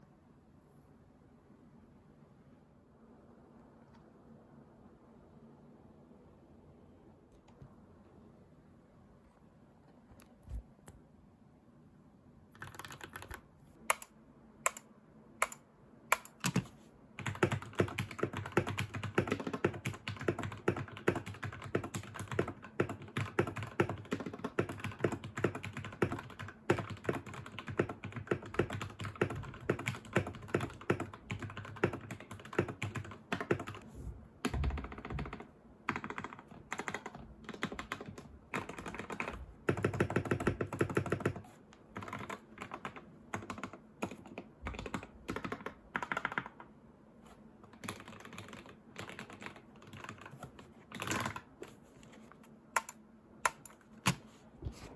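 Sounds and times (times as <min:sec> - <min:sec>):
mechanical keyboard typing: 0:12.5 - 0:33.8, 0:34.4 - 0:46.7, 0:47.7 - 0:51.8, 0:52.8 - 0:54.2.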